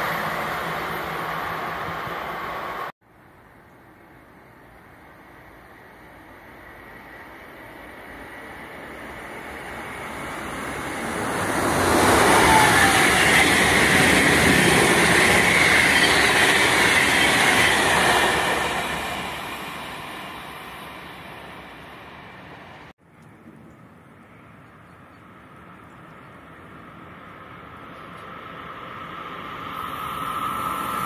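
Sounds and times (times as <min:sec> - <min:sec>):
train wheels rolling on rails: 0:06.7 - 0:22.9.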